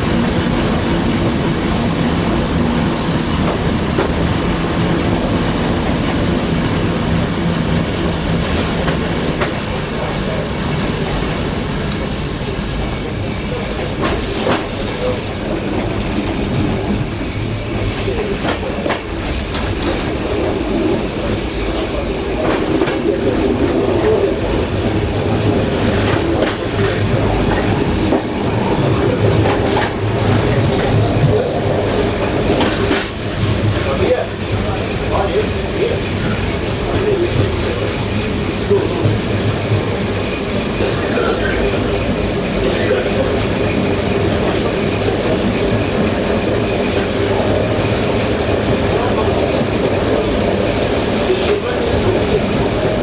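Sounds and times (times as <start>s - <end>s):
high wheel squeal: 0.0s - 0.9s, 4.7s - 8.1s
rail joint clicks: 0.0s - 6.9s, 7.5s - 53.0s
train wheels rumbling on rails: 0.0s - 53.0s.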